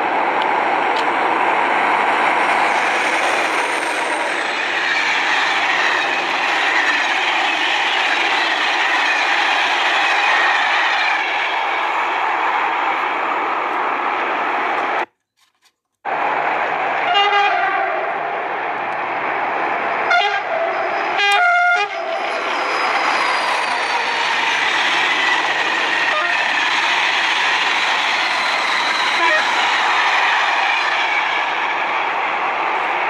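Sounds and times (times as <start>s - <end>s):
train rumble and rail noise: 0.0s - 15.1s, 16.1s - 33.0s
train horn blasts: 17.1s - 18.0s, 20.1s - 20.6s, 21.2s - 22.1s.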